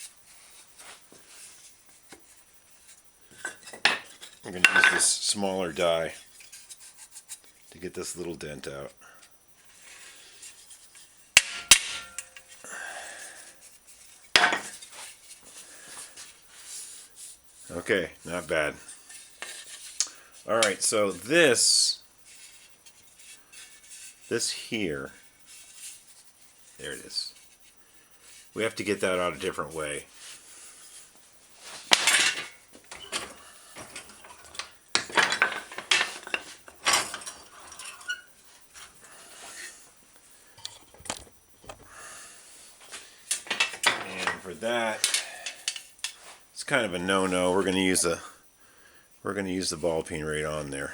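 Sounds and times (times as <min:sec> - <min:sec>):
scraping on metal: 0:10.0 - 0:12.6, 0:13.9 - 0:39.8
metal die striking bicycle fender: 0:11.4 - 0:12.5
metal hand tools clinking: 0:11.4 - 0:12.6.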